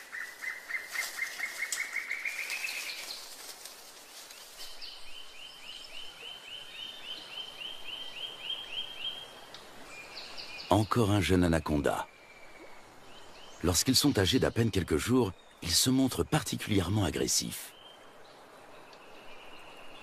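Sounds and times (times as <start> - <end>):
bird calling: 0.0 - 3.4
faint background hiss: 0.0 - 20.0.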